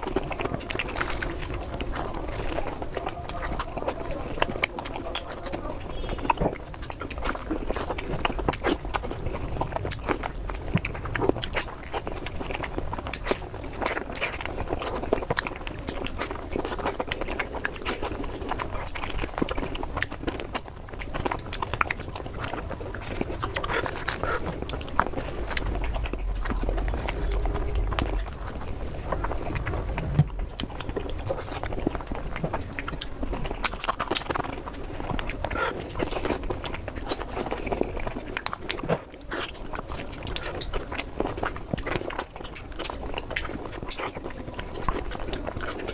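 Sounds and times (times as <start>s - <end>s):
chewing mouth sounds: 0.0s - 45.9s.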